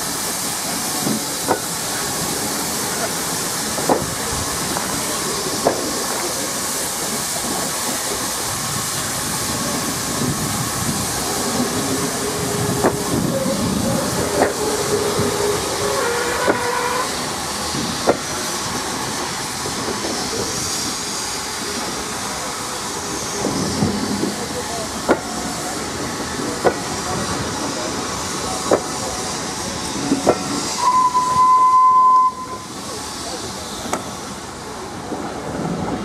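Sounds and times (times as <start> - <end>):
steam hiss: 0.0 - 36.0
wheels clicking at rail joints: 0.7 - 2.1, 3.7 - 8.4, 9.6 - 20.6, 23.4 - 31.3.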